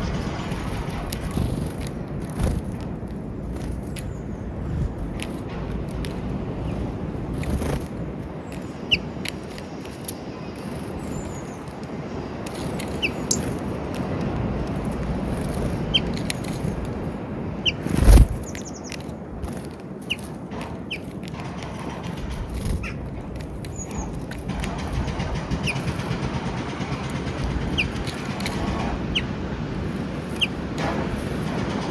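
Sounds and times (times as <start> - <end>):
small birds chirping: 0.0 - 31.5
steady low rumble: 0.0 - 31.9.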